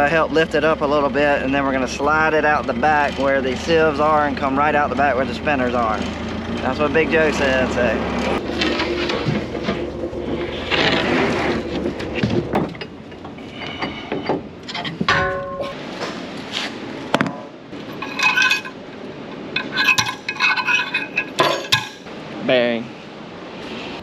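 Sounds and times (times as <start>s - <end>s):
metal tools clinking: 12.5s - 15.8s, 17.8s - 22.1s.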